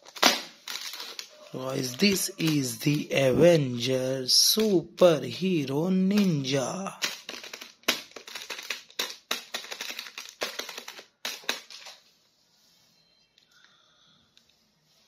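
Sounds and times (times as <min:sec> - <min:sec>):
hard plastic clicking and crackling: 0:06.1 - 0:12.0.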